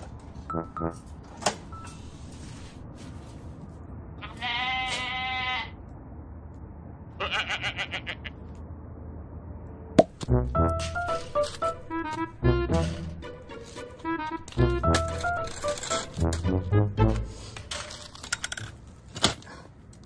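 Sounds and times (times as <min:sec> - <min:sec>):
animal bleating: 0:04.2 - 0:05.8, 0:07.2 - 0:08.4.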